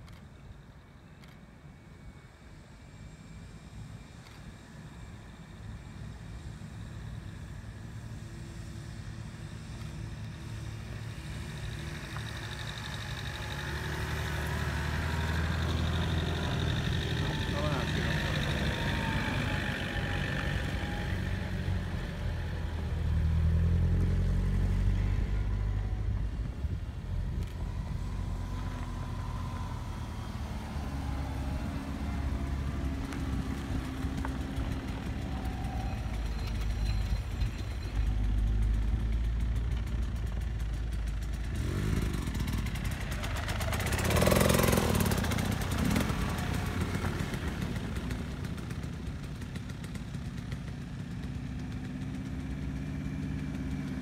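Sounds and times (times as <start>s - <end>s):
tyre and terrain noise: 3.0s - 54.0s
car engine revving: 10.7s - 39.5s, 41.4s - 48.8s.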